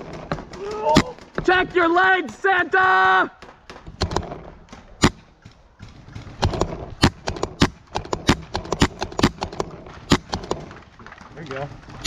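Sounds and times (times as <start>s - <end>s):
paintball markers firing: 3.4s - 5.6s, 6.3s - 10.7s.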